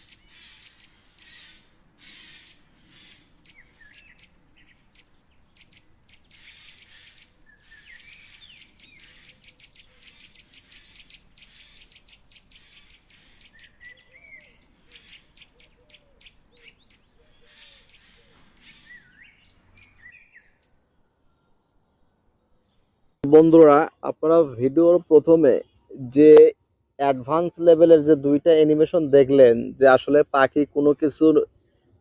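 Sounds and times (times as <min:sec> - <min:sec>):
whistled bird notes gliding: 0:00.0 - 0:22.8
birds chirping: 0:00.0 - 0:31.8.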